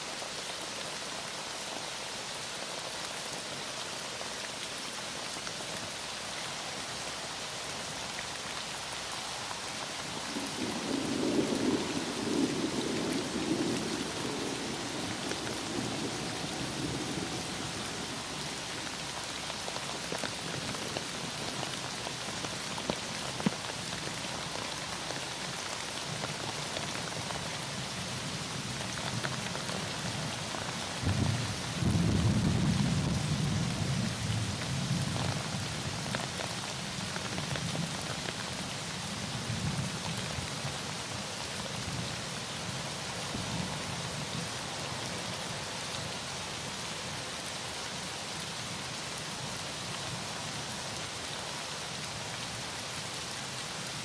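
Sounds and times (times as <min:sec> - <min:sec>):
heavy rain falling: 0:00.0 - 0:54.0
thunder rumbling: 0:10.4 - 0:18.5, 0:31.0 - 0:34.0.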